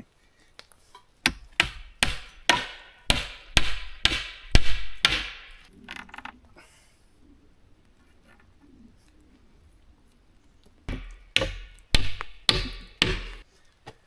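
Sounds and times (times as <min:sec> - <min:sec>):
hammer striking wood: 0:01.2 - 0:05.6, 0:10.9 - 0:13.4.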